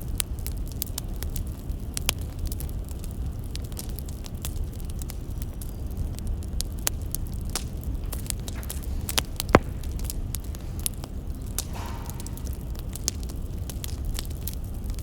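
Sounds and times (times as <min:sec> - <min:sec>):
firewood crackling: 0:00.0 - 0:15.0
low fire rumble: 0:00.0 - 0:15.0
loud fire pop: 0:07.5 - 0:14.6.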